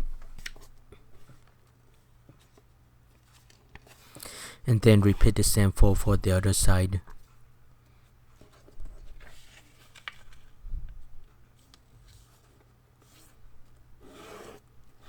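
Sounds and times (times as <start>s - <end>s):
paper rustling and folding: 1.6s - 4.0s, 8.3s - 10.6s.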